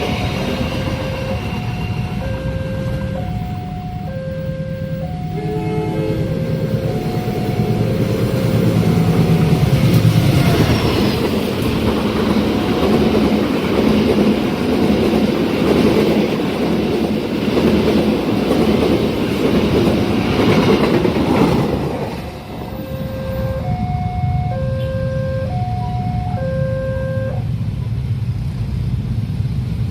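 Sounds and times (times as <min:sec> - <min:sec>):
train wheels clacking on rails: 0:00.0 - 0:04.0, 0:06.4 - 0:23.1
level crossing warning tones: 0:00.0 - 0:11.3, 0:22.5 - 0:27.4
locomotive engine: 0:00.0 - 0:27.6.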